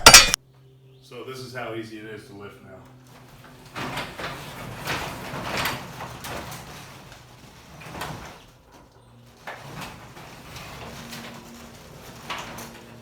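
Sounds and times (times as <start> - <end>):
garage door rollers rumbling: 3.0 - 13.0.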